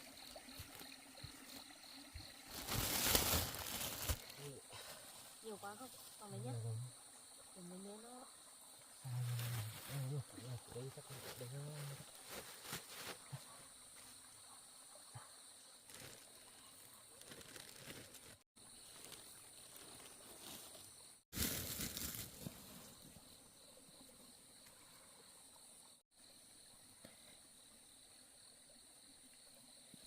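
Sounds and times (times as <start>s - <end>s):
insects chirring: 0.0s - 30.0s
rustling noise: 2.5s - 4.3s, 11.9s - 13.3s, 17.2s - 22.8s.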